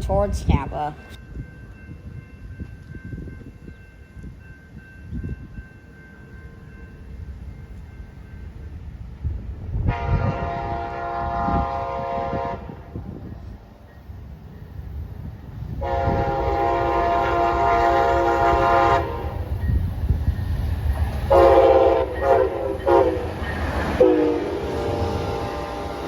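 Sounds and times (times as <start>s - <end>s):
train rumble: 0.0s - 26.0s
locomotive air horn blasts: 9.8s - 13.0s, 15.8s - 19.5s, 21.3s - 23.3s, 24.0s - 26.0s.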